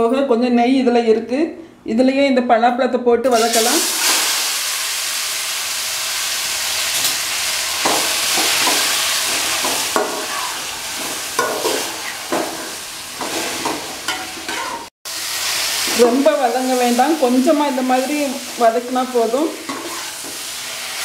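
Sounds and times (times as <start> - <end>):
food sizzling in a pot: 3.3 - 21.0
metal ladle scraping a pot: 13.2 - 14.9, 19.6 - 20.5.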